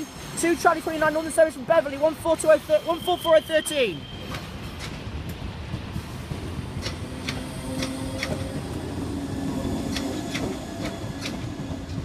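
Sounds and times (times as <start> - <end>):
train wheels clicking over rail joints: 4.2 - 12.0.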